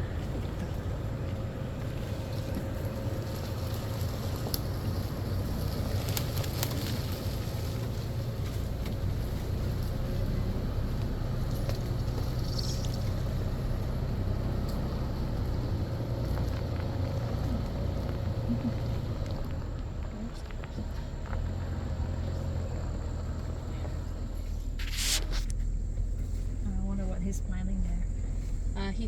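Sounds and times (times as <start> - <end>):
four-wheeler engine running: 0.0 - 29.0.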